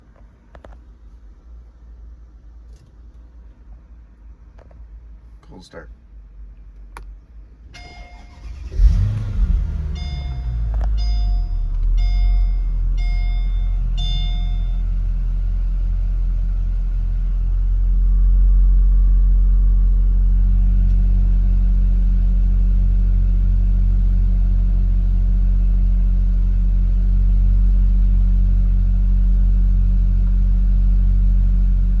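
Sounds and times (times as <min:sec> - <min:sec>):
car engine starting and idling: 0:06.6 - 0:32.0
electronic beep: 0:09.9 - 0:14.8.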